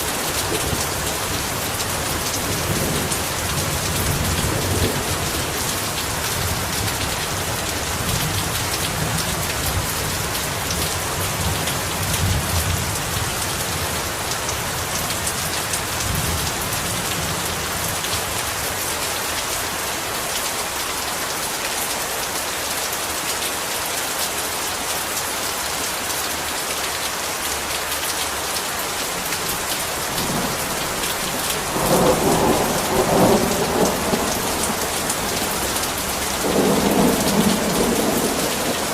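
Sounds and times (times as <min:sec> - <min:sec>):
heavy rain hissing: 0:27.5 - 0:38.9
thunder rumbling: 0:30.2 - 0:38.9.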